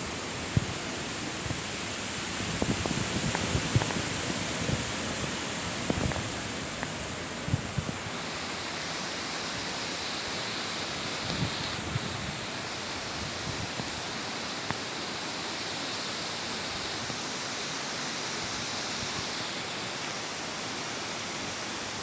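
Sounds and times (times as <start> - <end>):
storm wind: 0.0 - 8.2, 10.9 - 14.0
rain: 0.0 - 22.0.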